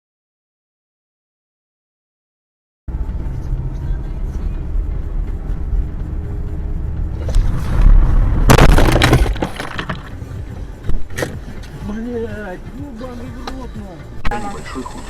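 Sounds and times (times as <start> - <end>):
car engine and road rumble: 2.9 - 15.0
car crash impact and crunching: 7.2 - 11.6.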